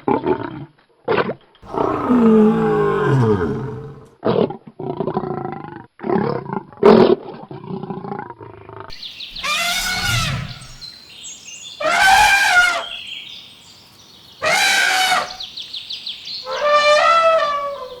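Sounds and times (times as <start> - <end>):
loud animal calls: 1.6 - 4.1, 9.3 - 10.9, 11.8 - 13.0, 14.4 - 15.5, 16.4 - 18.0.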